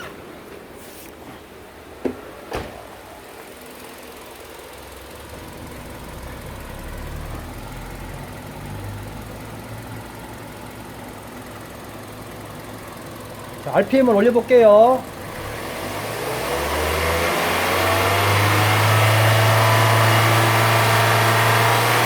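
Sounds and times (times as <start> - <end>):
car engine idling: 1.5 - 16.4.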